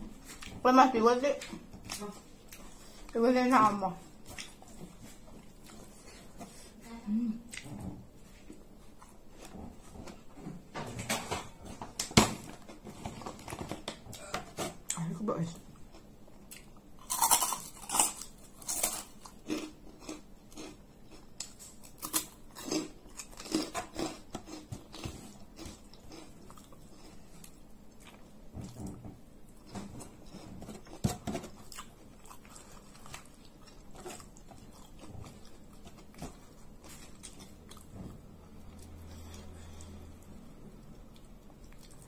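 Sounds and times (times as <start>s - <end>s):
chewing: 4.2s - 6.4s, 15.8s - 42.0s.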